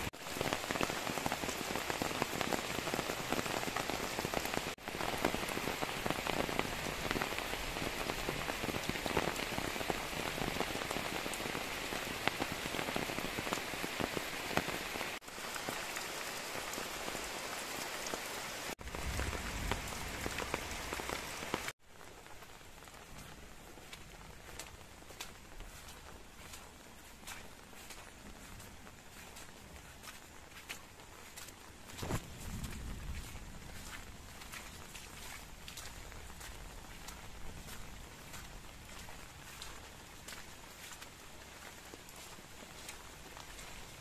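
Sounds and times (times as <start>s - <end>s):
steady rain falling: 0.0s - 44.0s.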